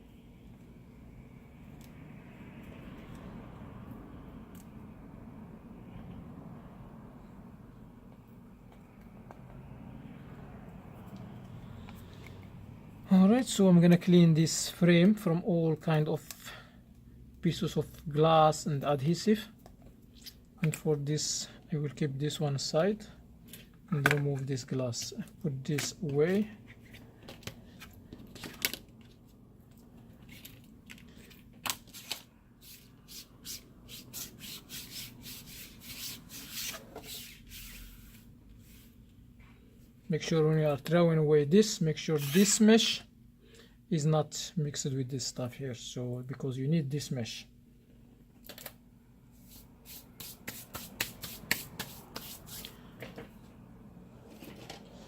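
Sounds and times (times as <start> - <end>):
rubbing and scraping strokes: 32.0 - 39.0, 49.4 - 52.8.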